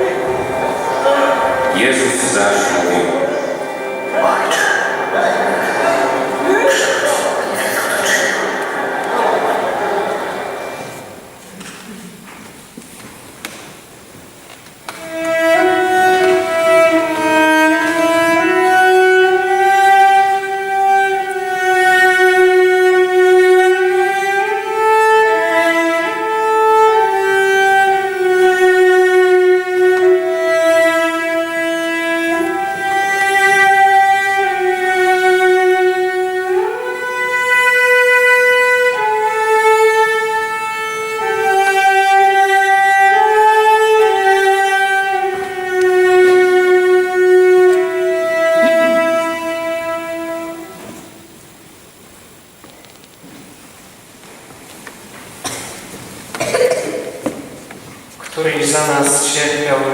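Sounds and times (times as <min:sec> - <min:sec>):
slow violin melody: 0:00.0 - 0:11.5, 0:14.9 - 0:51.0.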